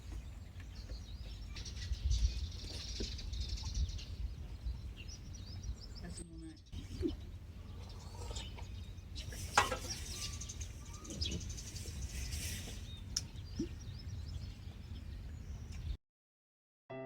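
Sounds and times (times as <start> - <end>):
bird chirps: 0.0 - 16.0
wind on microphone: 1.1 - 6.2.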